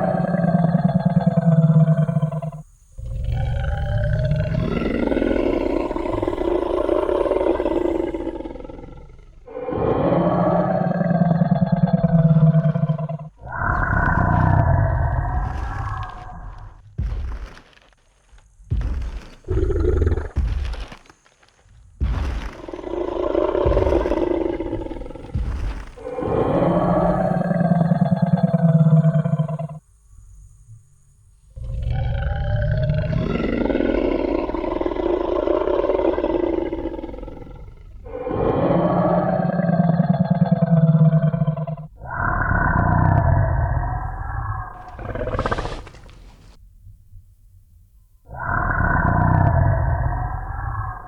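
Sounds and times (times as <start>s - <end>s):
deep rumbling dinosaur roar: 0.0s - 16.8s, 19.4s - 20.5s, 22.2s - 29.8s, 31.5s - 46.6s, 48.2s - 51.0s
low thuds: 15.0s - 27.2s.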